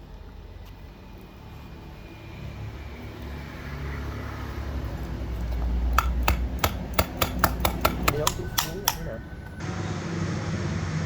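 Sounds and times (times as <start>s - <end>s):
sharp clicks and knocks: 5.4s - 9.6s.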